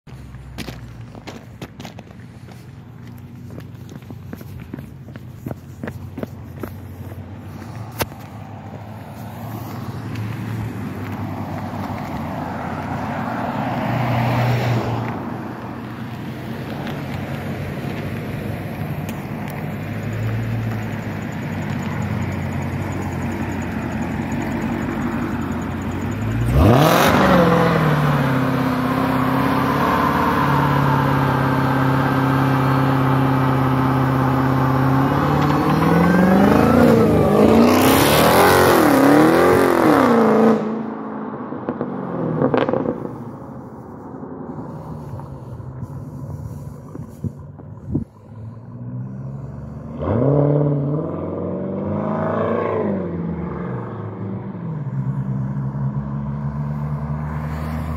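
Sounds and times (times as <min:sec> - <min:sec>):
car engine rumbling and revving: 0:00.0 - 0:57.9
tyres spinning on road: 0:08.6 - 0:39.4.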